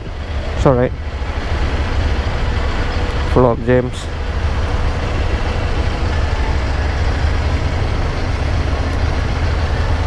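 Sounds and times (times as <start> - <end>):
motorcycle engine rumble: 0.0 - 10.0
road noise: 0.0 - 10.0.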